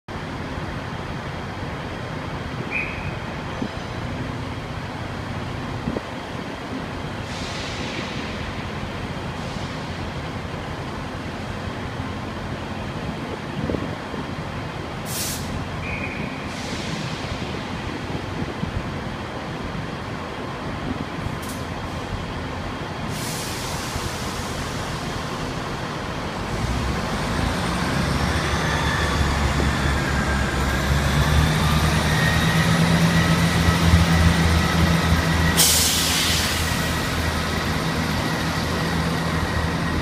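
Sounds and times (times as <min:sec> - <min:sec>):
diesel train engine rumbling: 0:00.1 - 0:40.0
short hisses: 0:15.1 - 0:15.6.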